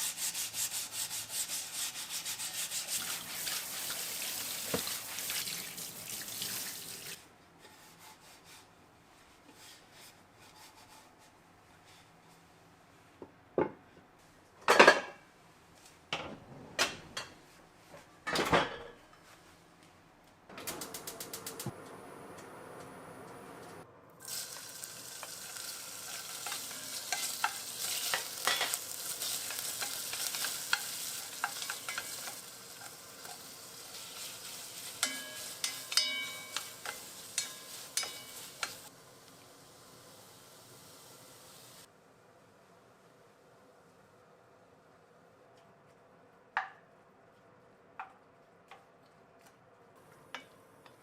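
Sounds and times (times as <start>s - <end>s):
food sizzling in a frying pan: 2.6s - 7.2s, 24.2s - 41.9s
utensil clinking against pan: 35.0s - 38.8s.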